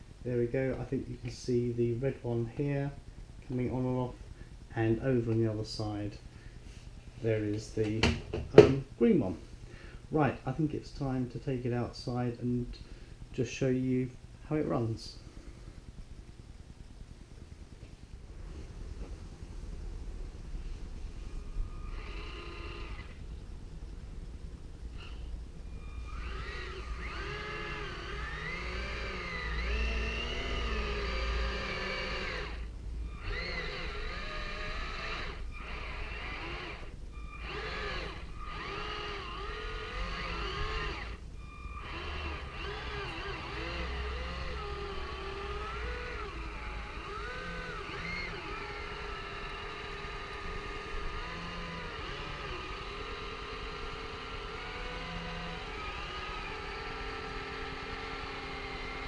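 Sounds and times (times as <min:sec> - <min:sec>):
electric motors whining: 0:21.2 - 0:23.2, 0:24.9 - 0:59.0.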